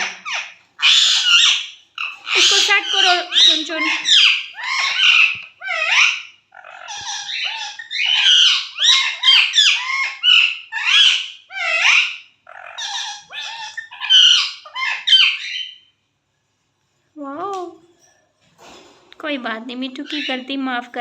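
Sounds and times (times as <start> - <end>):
parrot chattering and squawking: 0.0 - 15.9, 20.0 - 20.5.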